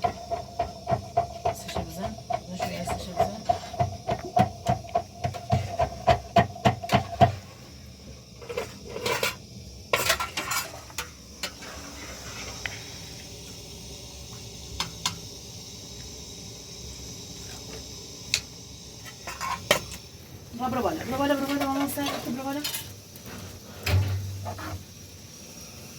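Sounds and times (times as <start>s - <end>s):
faint steady hiss: 0.0s - 25.9s.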